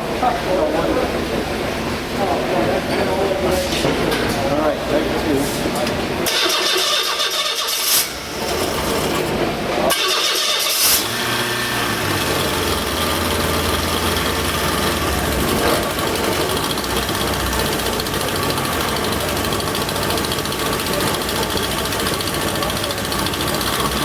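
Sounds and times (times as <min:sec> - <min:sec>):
starter cranking engine: 0:06.2 - 0:24.0
car engine running steadily: 0:10.6 - 0:24.0.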